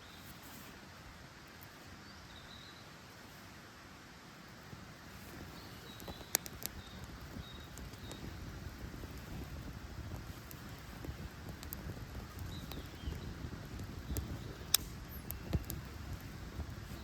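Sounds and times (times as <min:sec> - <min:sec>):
campfire crackling and popping: 0:05.0 - 0:17.0.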